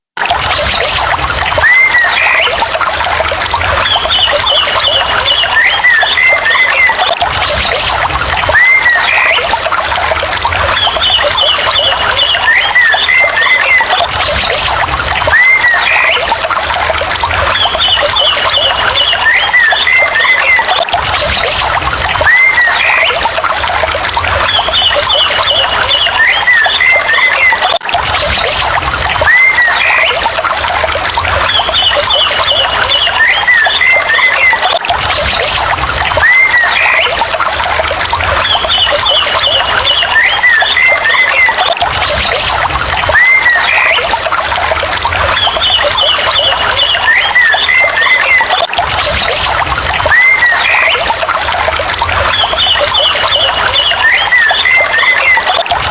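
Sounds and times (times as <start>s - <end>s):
whistled bird calls: 3.8s - 9.6s, 10.7s - 16.5s, 17.5s - 23.4s, 36.2s - 37.3s, 38.4s - 44.3s, 45.3s - 51.4s, 52.3s - 55.6s.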